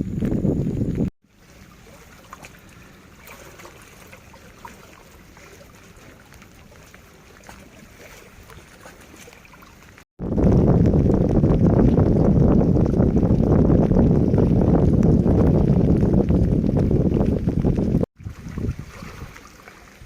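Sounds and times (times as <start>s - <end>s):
low rushing rumble: 10.2s - 19.0s.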